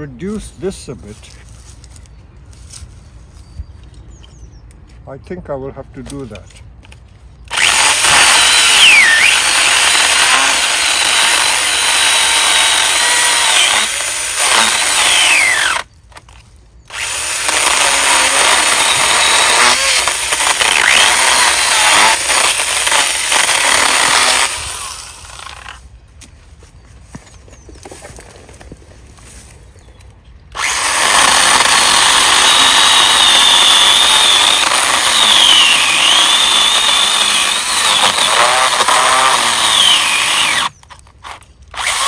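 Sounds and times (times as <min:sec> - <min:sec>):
chainsaw cutting wood: 0:07.5 - 0:25.8, 0:30.5 - 0:42.0.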